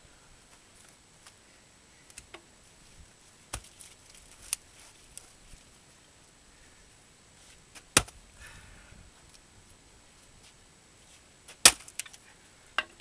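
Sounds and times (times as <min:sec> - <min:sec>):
firewood and axe knocking: 0:03.5 - 0:03.8, 0:07.8 - 0:08.2, 0:11.6 - 0:12.1.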